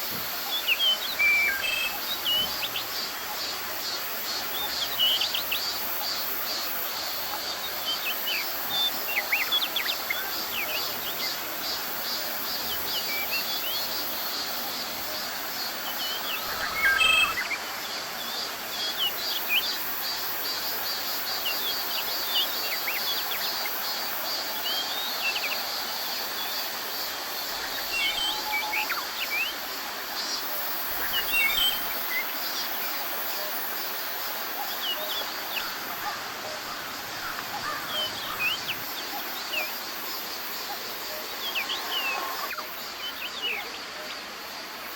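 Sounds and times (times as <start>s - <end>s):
background hiss: 0.0s - 44.9s
birds chirping and calling: 16.0s - 17.6s.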